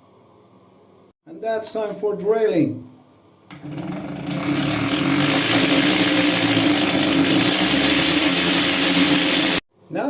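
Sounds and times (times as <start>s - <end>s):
electric drill drilling into wall: 3.5s - 9.7s.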